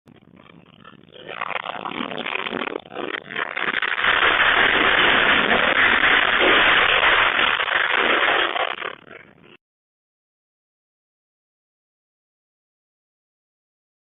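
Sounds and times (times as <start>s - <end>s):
building rattling in earthquake: 0.8s - 9.1s.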